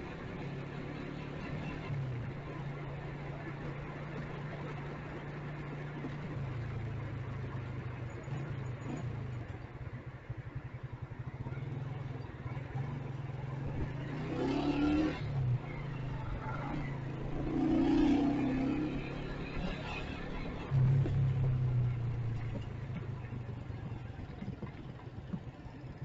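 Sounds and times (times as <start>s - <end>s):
city traffic: 0.0s - 26.0s
motorcycle engine running: 0.0s - 26.0s.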